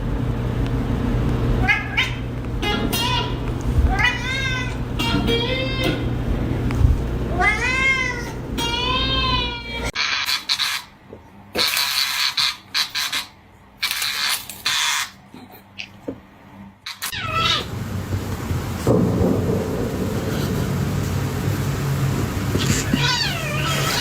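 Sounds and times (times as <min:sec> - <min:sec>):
cat meowing: 0:01.6 - 0:06.0, 0:07.3 - 0:10.0, 0:16.9 - 0:17.7, 0:22.6 - 0:24.0.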